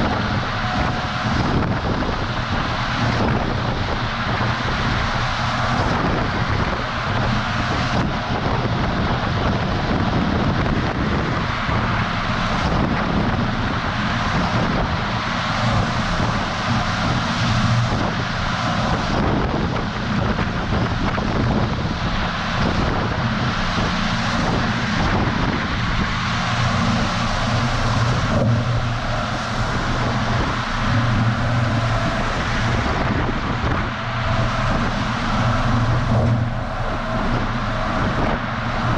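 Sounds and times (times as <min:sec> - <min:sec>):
truck engine drone: 0:00.0 - 0:38.9
wind and tyre noise: 0:00.0 - 0:38.9.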